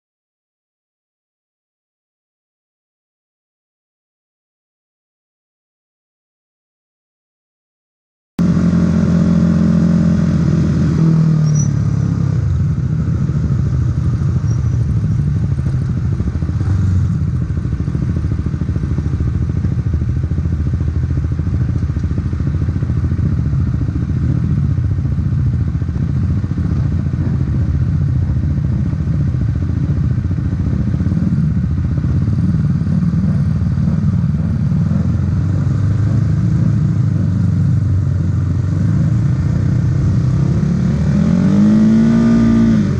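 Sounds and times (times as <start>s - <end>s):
racing motorcycle engine running: 8.4s - 42.9s.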